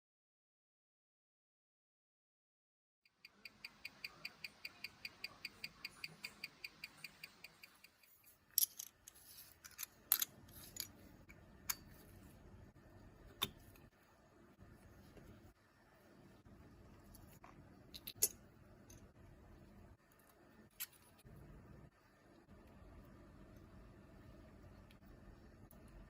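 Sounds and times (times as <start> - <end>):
watch ticking: 3.2 - 8.2.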